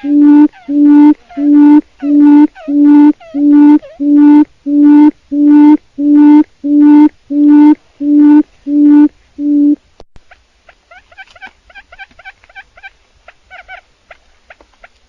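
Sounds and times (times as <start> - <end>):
quail low hoots: 0.0 - 9.8.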